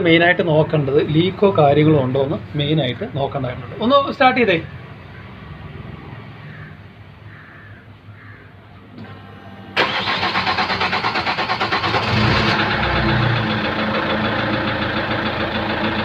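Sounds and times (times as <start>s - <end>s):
diesel engine cranking and idling: 8.9s - 16.0s.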